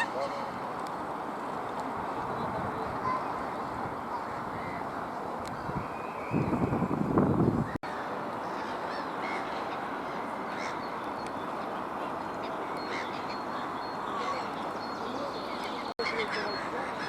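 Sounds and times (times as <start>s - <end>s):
waterbird calls: 0.0s - 0.6s, 8.0s - 17.0s
steady background murmur: 0.0s - 5.6s, 7.8s - 17.0s.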